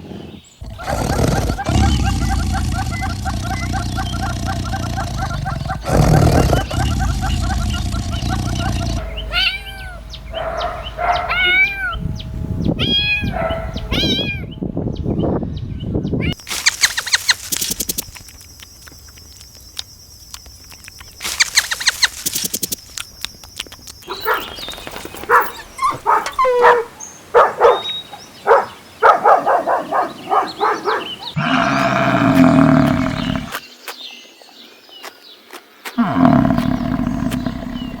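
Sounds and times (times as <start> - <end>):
long low animal calls: 0.6 - 10.4, 29.9 - 33.6, 36.0 - 38.0
animal rapid clicking calls: 16.4 - 26.5.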